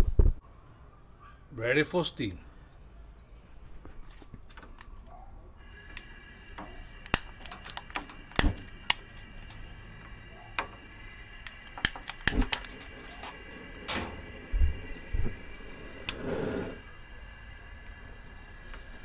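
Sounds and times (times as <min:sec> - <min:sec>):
gas burner hissing: 0:05.6 - 0:19.0
lighter clicking: 0:05.7 - 0:13.5, 0:16.0 - 0:16.4.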